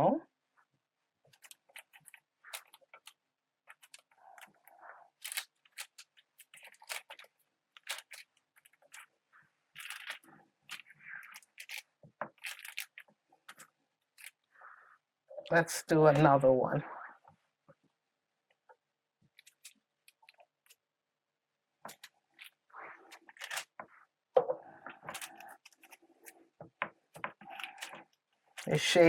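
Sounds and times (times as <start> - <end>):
parchment paper crinkling: 1.2 - 15.0, 17.8 - 20.9, 21.8 - 29.0
paper rustling: 1.3 - 14.8, 19.3 - 20.8, 21.9 - 24.0, 24.7 - 28.8.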